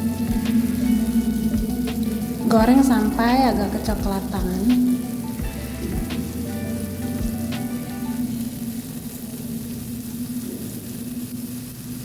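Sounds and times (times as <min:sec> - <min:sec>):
background music with held notes: 0:00.0 - 0:09.0
meat sizzling in hot oil: 0:00.0 - 0:12.0.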